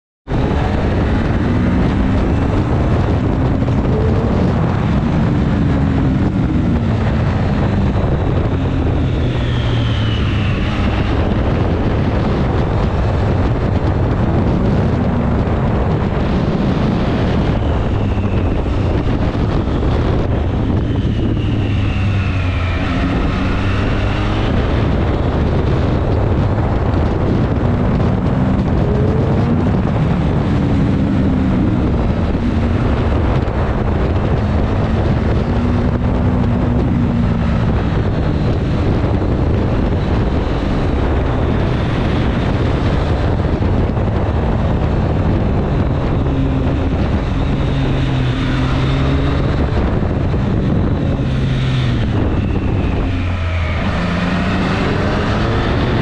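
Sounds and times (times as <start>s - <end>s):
motorcycle engine accelerating: 0.2s - 56.0s
wind rushing over microphone: 0.2s - 56.0s.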